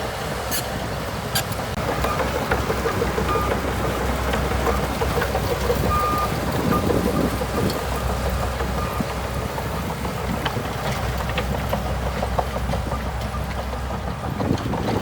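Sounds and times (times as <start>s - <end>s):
bulldozer diesel engine droning: 0.0s - 15.0s.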